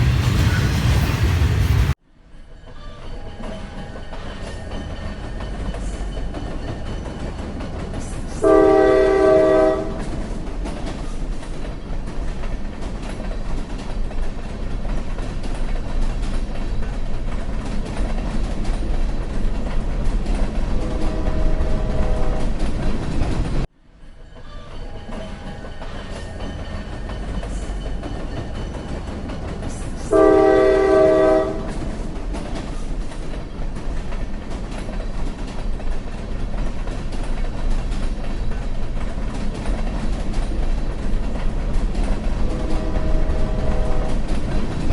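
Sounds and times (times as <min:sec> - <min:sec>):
train rumbling: 0:00.0 - 0:44.9
train horn: 0:08.4 - 0:10.2, 0:20.8 - 0:22.6, 0:30.0 - 0:31.9, 0:42.4 - 0:44.3.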